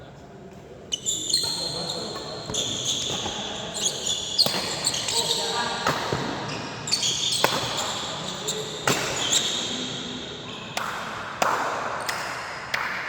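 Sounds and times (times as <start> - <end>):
shoes squeaking on court: 0.9 - 10.0
rackets striking shuttlecock: 4.4 - 5.1, 7.4 - 7.8.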